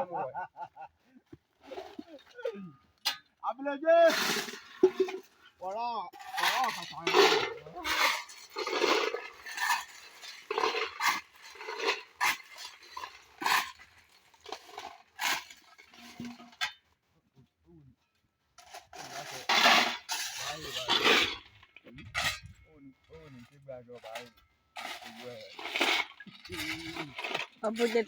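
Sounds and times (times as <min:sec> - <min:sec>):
metal clinking and scraping: 0:04.1 - 0:05.6, 0:06.2 - 0:17.1, 0:18.1 - 0:28.0.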